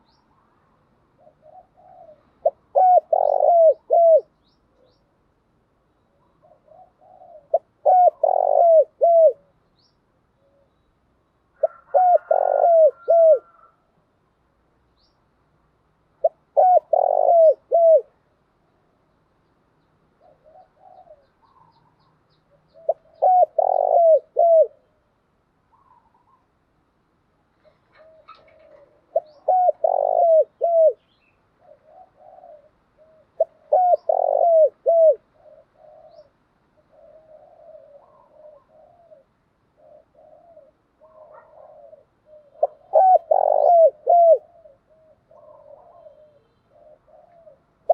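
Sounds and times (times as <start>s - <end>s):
dove cooing: 1.1s - 5.0s, 6.1s - 9.6s, 11.5s - 13.8s, 16.2s - 18.2s, 20.2s - 25.0s, 25.7s - 26.5s, 27.6s - 47.9s.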